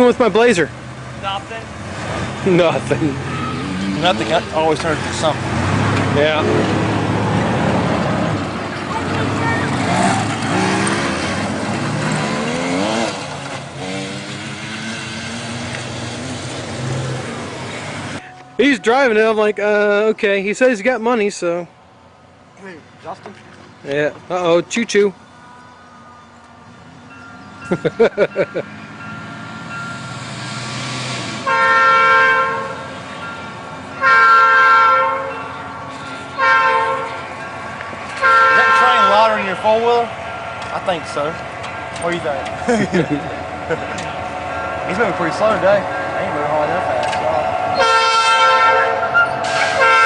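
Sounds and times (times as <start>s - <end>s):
off-road vehicle engine revving: 0.0s - 18.2s, 27.8s - 32.8s, 38.0s - 50.0s
locomotive air horn blasts: 31.4s - 33.0s, 33.9s - 37.4s, 38.1s - 40.8s, 44.1s - 50.0s
steady rush of noise: 38.9s - 50.0s.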